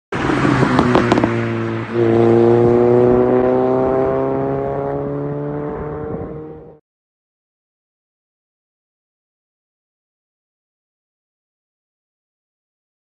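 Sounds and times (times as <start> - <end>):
car engine revving with pops: 0.2 - 6.8.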